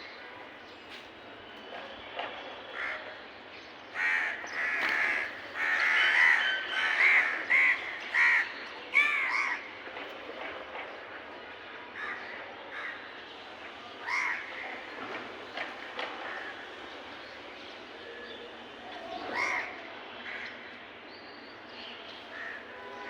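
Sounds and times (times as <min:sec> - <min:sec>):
crows cawing: 0:04.0 - 0:09.7, 0:14.0 - 0:14.6, 0:19.3 - 0:20.5.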